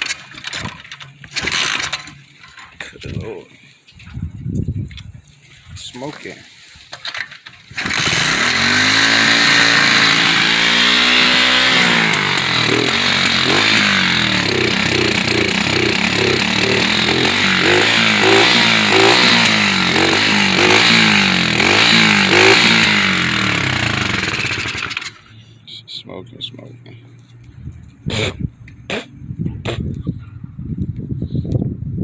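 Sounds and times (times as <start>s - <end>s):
pit bike engine revving: 1.3s - 2.1s, 7.7s - 25.4s.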